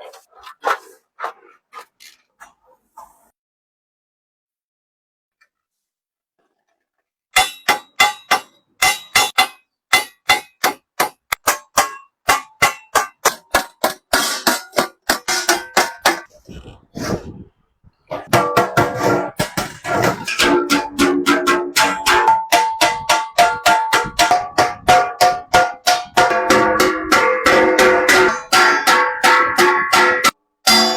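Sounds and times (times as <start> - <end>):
hammer on sheet metal: 7.4 - 16.3, 18.2 - 30.9.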